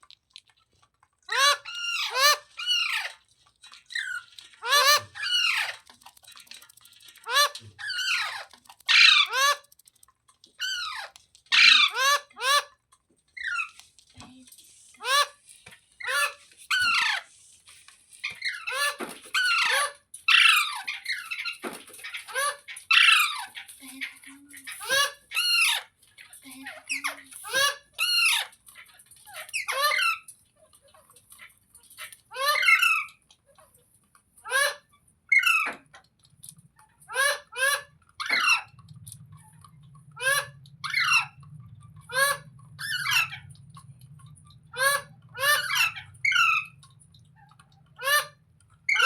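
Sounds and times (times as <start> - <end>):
parakeet screeching squawks: 1.3 - 3.2, 3.8 - 5.9, 7.2 - 9.6, 10.6 - 12.8, 16.0 - 17.3, 18.3 - 23.6, 32.0 - 33.2, 37.1 - 38.8, 39.4 - 49.0.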